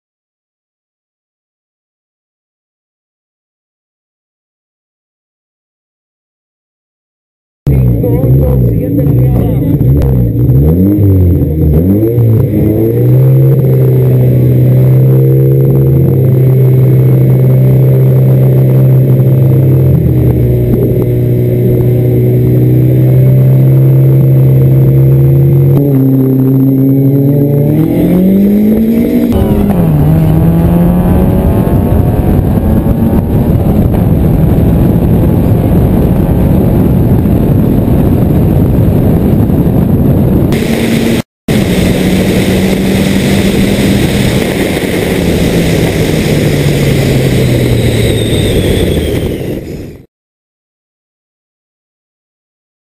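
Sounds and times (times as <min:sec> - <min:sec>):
car engine revving: 0:07.7 - 0:50.1
car launching at full throttle: 0:10.0 - 0:39.6, 0:40.4 - 0:50.1.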